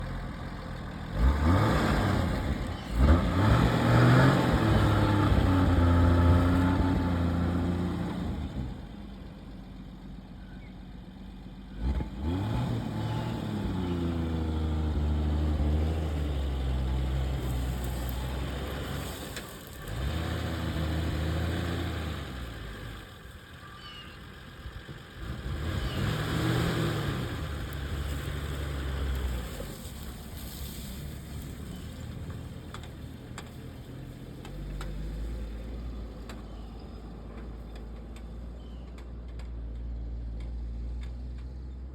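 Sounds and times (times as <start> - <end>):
car engine speeding up: 25.2 - 31.5.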